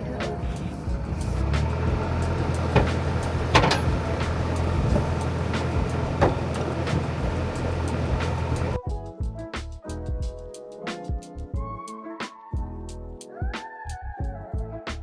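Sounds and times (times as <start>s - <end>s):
boat engine humming: 0.0s - 8.8s
sharp knocks and clicks: 2.5s - 8.8s.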